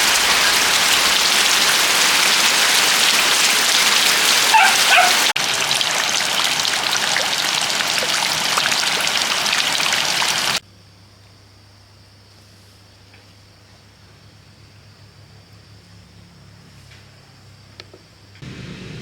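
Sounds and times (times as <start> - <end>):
heavy rain: 0.0 - 10.6
dog yipping: 4.4 - 5.4.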